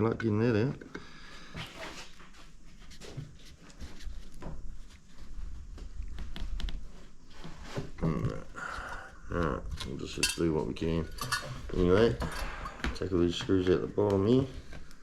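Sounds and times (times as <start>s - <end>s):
hand tools clicking on metal parts: 9.8s - 11.6s.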